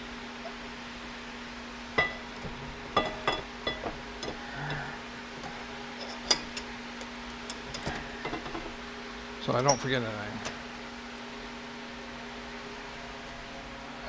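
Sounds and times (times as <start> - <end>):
steady low hum: 0.0 - 14.0
small metal parts clinking: 6.0 - 6.7.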